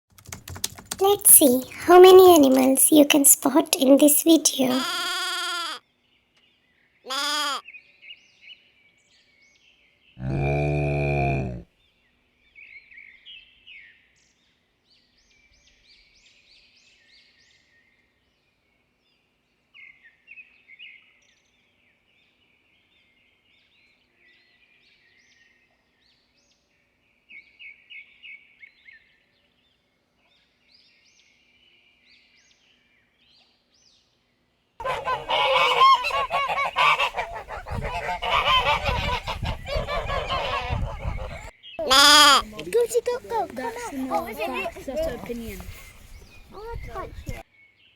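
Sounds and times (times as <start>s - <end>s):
faint high bird calls: 7.1s - 7.6s, 34.8s - 47.4s
geese honking: 7.1s - 7.6s, 34.8s - 47.4s.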